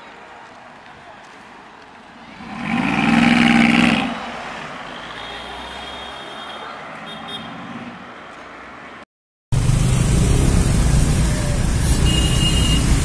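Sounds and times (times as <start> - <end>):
road traffic noise: 0.0 - 13.0
car engine revving: 9.6 - 13.0.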